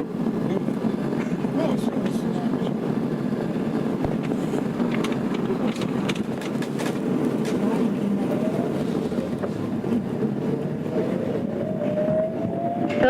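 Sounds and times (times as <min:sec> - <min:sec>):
train wheel and rail rumble: 0:00.0 - 0:13.0
rising electric motor whine: 0:07.8 - 0:13.0.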